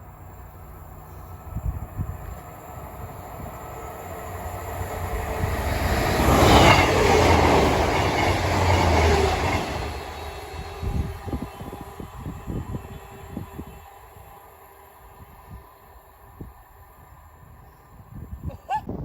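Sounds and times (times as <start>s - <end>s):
train passing close by: 0.0s - 18.6s.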